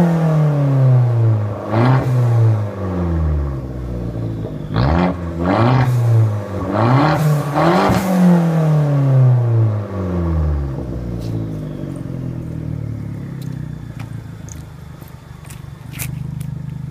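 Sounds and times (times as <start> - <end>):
car exhaust revving: 0.0 - 16.9
exhaust crackling pops: 10.9 - 16.9.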